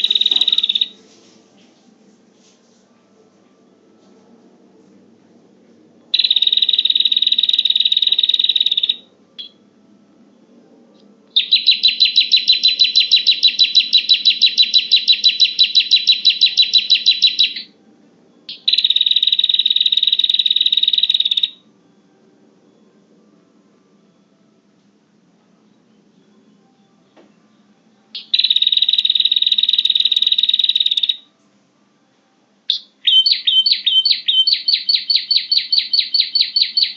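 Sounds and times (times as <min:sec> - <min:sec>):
bird trilling song: 0:00.0 - 0:01.0, 0:06.2 - 0:09.6, 0:11.4 - 0:17.7, 0:18.5 - 0:21.6, 0:28.2 - 0:31.2, 0:32.7 - 0:36.9.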